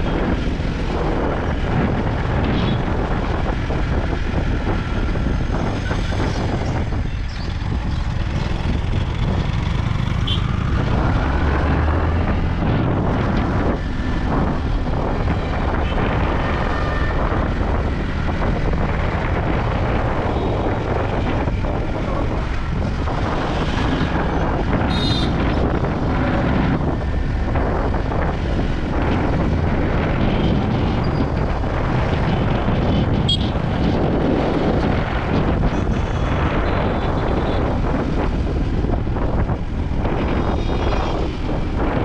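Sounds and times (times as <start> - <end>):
wind noise on microphone: 0.0 - 42.0
motorcycle engine running: 7.4 - 13.7.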